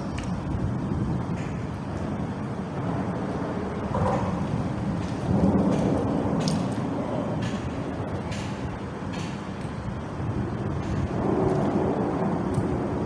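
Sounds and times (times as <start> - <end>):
rumble of vehicles on bridge: 0.0 - 13.0.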